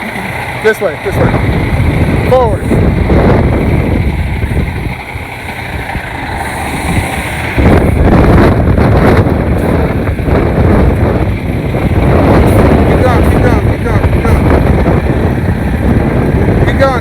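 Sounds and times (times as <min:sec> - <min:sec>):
truck diesel engine rumbling: 0:00.0 - 0:17.0
wind buffeting microphone: 0:00.0 - 0:17.0.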